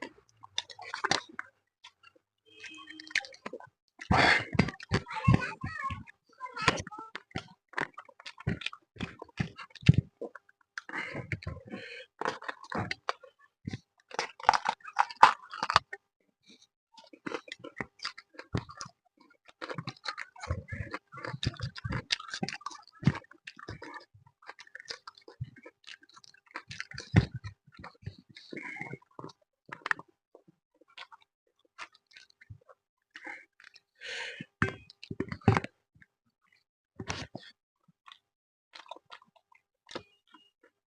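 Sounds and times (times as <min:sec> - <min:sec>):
person chewing wet mouth smacks: 0:19.5 - 0:30.0, 0:38.8 - 0:40.5.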